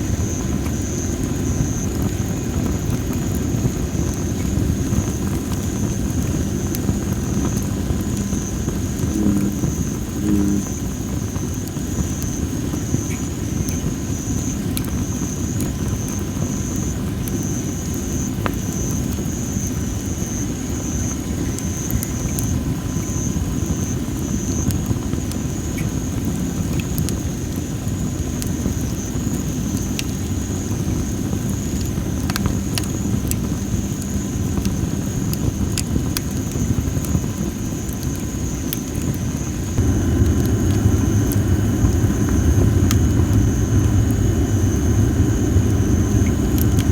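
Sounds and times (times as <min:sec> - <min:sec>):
low fire rumble: 0:00.0 - 0:46.9
firewood crackling and popping: 0:00.1 - 0:46.9
high-pitched buzz: 0:09.1 - 0:09.6, 0:39.8 - 0:46.9.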